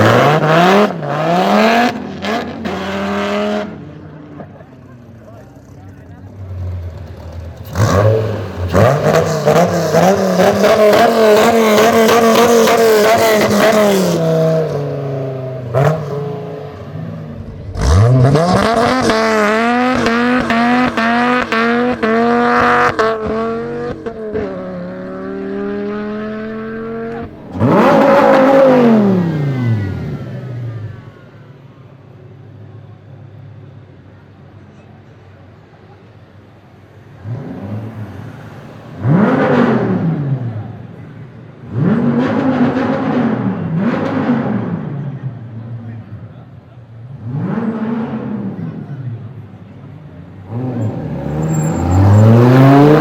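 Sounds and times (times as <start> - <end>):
car exhaust hard acceleration: 7.2 - 31.3
car passing by: 50.6 - 53.0.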